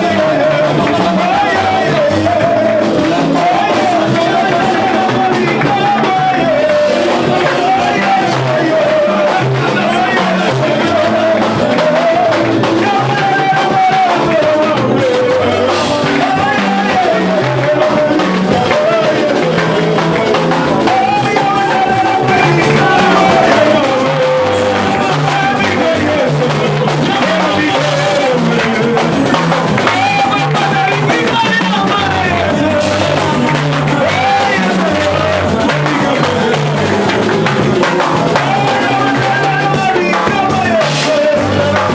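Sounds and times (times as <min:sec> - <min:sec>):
band playing: 0:00.0 - 0:41.9
person singing: 0:00.0 - 0:41.9
repeating bass line: 0:00.0 - 0:41.9.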